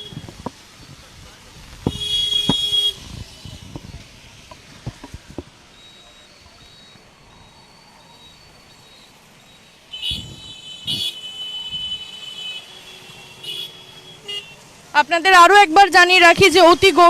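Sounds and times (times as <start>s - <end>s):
vehicle horns honking: 0.0s - 0.3s, 1.8s - 3.7s, 9.9s - 14.6s
road traffic hiss: 0.0s - 17.0s
faint high beeping: 5.7s - 9.8s.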